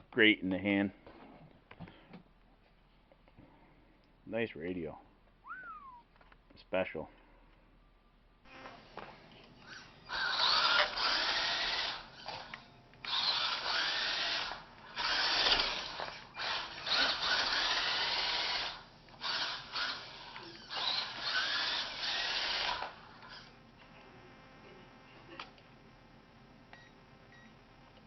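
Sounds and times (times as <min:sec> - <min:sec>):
electric rc truck motor bursts: 0:09.6 - 0:12.5, 0:13.1 - 0:23.5.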